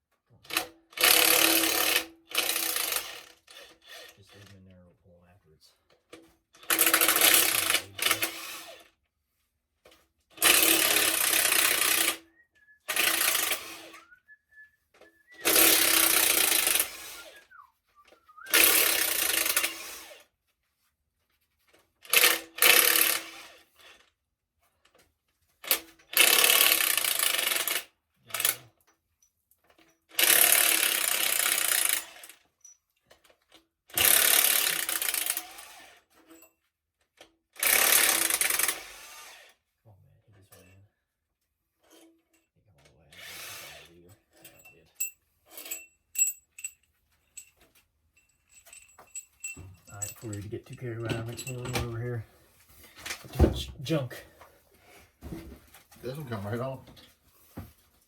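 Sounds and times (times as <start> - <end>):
power tool rattling bursts: 0.5 - 4.5, 6.1 - 8.9, 10.3 - 12.2, 12.9 - 14.0, 15.4 - 17.4, 18.5 - 20.3, 22.0 - 24.0, 25.6 - 28.6, 30.1 - 32.6, 33.9 - 36.3, 37.5 - 39.6, 43.2 - 43.9.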